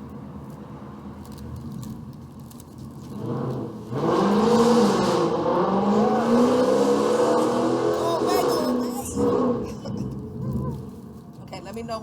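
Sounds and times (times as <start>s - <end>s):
car engine revving: 3.1s - 10.9s.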